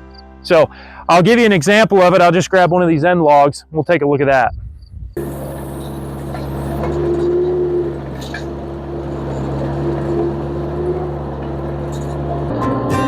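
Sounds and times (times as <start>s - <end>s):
acoustic guitar music: 5.2s - 13.0s
skid steer engine running: 5.2s - 13.0s.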